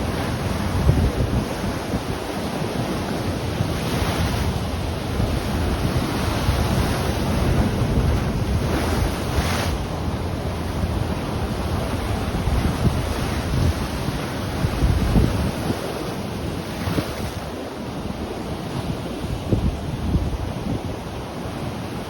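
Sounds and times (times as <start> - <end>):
ocean surf washing on shore: 0.0 - 22.0
wind buffeting microphone: 0.0 - 22.0.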